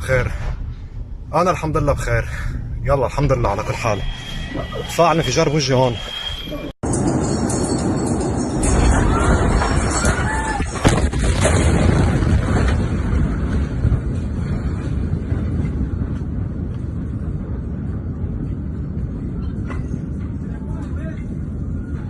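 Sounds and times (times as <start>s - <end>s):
low rumbling street noise: 0.0s - 22.0s.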